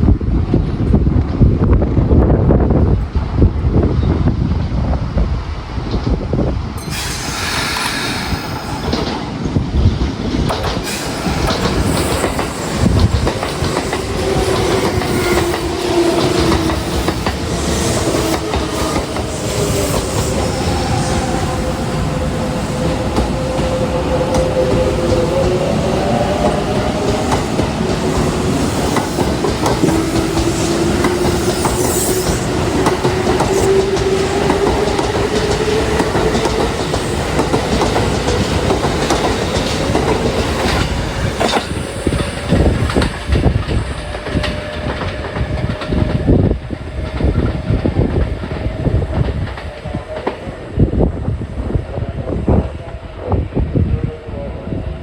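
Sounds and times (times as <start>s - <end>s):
train rolling noise: 0.0s - 55.0s
train motor whine: 6.8s - 9.6s, 10.5s - 28.0s.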